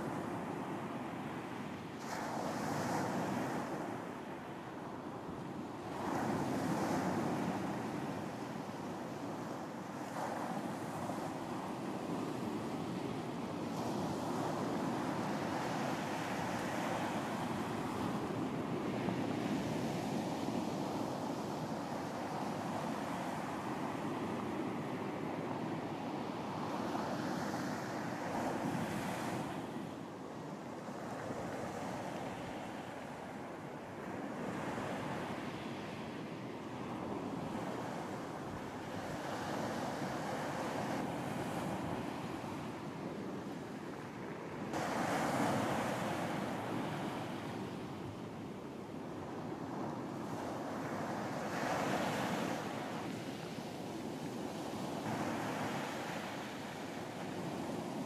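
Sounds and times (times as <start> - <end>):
ocean waves on beach: 0.0 - 58.0
ocean surf washing onto beach: 30.9 - 58.0.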